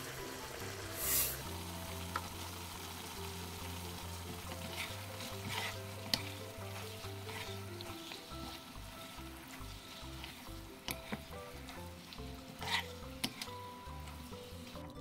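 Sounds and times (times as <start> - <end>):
meat sizzling in frying pan: 0.0 - 15.0
short loud hiss: 0.9 - 1.5
utensil scraping pan: 4.3 - 15.0
utensil clacking against pan: 4.5 - 8.7, 9.5 - 15.0.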